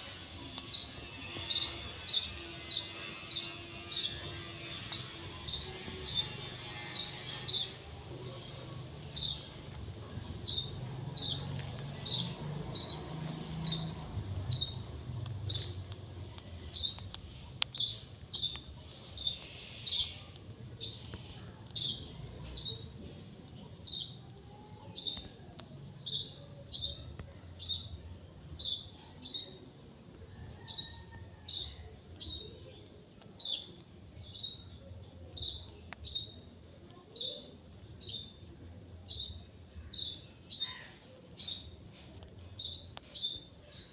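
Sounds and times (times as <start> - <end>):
bird chirping: 10.4 - 22.8.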